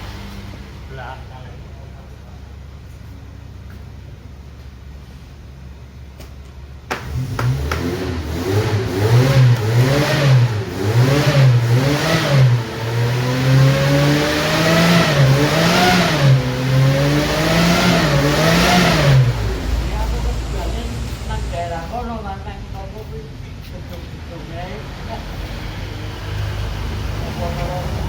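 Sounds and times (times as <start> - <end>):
engine revving up and down: 0.0 - 1.6, 6.9 - 21.8, 24.8 - 28.0.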